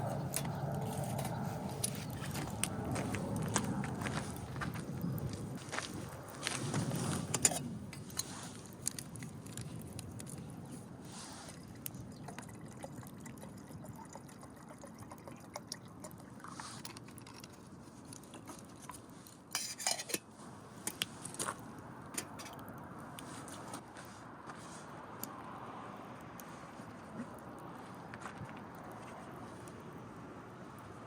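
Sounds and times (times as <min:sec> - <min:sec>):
wood fire crackling: 0:00.0 - 0:12.2, 0:20.4 - 0:31.0
rustle: 0:05.3 - 0:11.9, 0:16.4 - 0:25.3.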